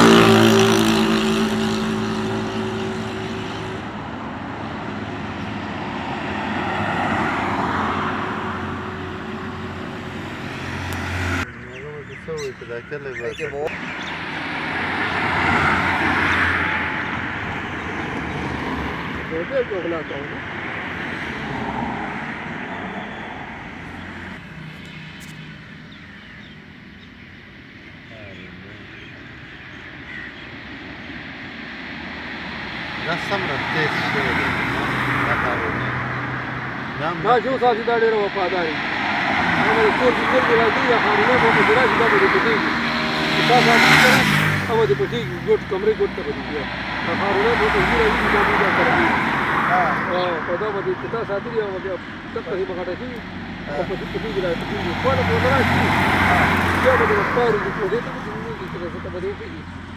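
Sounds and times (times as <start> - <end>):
vehicle engine hum: 0.0 - 59.9
vehicle passing with tyre noise: 0.0 - 59.9
faint bird chirps: 11.5 - 14.3, 24.8 - 31.1.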